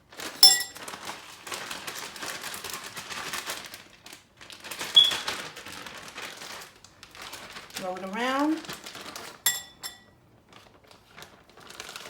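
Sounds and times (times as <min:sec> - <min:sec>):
plastic bag crinkling: 0:00.1 - 0:12.0
sharp clink: 0:00.4 - 0:00.8, 0:09.5 - 0:10.0.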